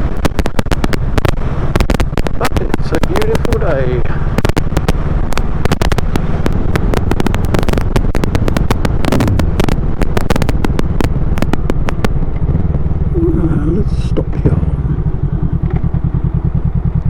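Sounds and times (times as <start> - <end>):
sharp crackling clicks: 0.0 - 12.9, 15.6 - 16.0
motorcycle engine rumbling: 0.0 - 17.0.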